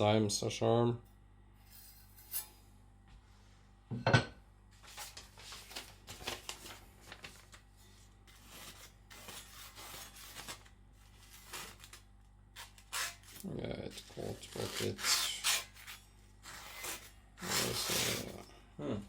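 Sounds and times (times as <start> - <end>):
blade rasping on stone: 8.3 - 10.5, 12.6 - 13.4, 14.5 - 18.3.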